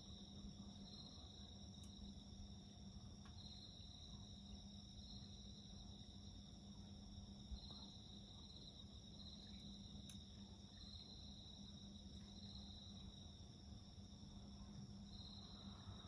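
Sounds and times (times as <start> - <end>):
crickets and insects trilling: 0.1 - 16.0
campfire crack: 9.2 - 10.8.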